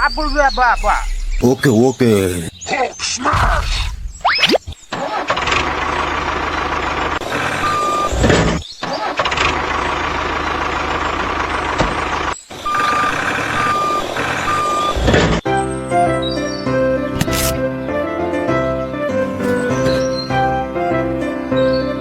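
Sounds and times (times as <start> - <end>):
truck engine running: 4.9 - 15.5, 18.6 - 21.2
reversing alarm beeping: 7.4 - 8.2, 12.6 - 15.1.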